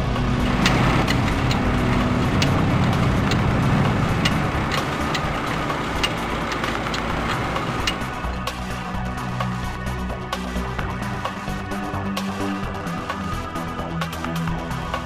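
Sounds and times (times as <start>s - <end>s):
off-road vehicle engine running: 0.0s - 15.0s
ticking beat of background music: 0.0s - 15.0s.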